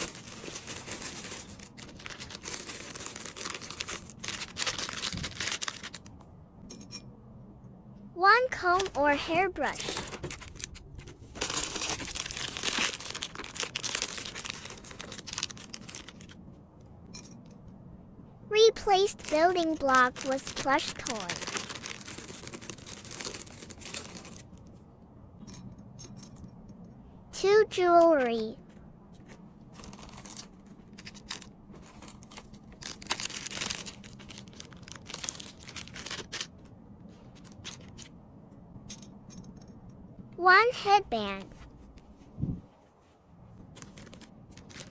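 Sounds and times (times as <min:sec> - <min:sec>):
packaging crinkling and rustling: 0:00.0 - 0:06.2, 0:09.7 - 0:16.4, 0:19.1 - 0:24.6, 0:29.2 - 0:38.1, 0:43.0 - 0:44.9
small items clicking and tapping: 0:00.0 - 0:07.0, 0:09.7 - 0:16.4, 0:19.2 - 0:24.5, 0:29.8 - 0:36.7.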